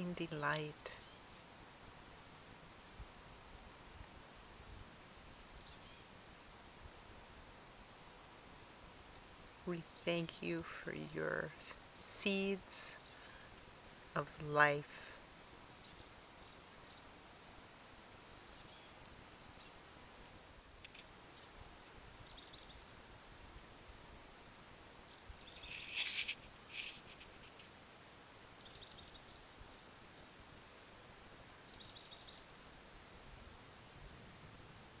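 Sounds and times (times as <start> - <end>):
faint outdoor background noise: 0.0 - 35.0
birds chirping: 24.6 - 32.5.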